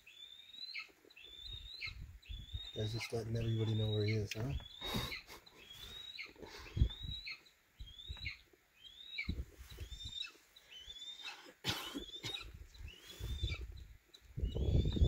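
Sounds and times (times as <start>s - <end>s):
bird whistling call: 3.5s - 13.7s.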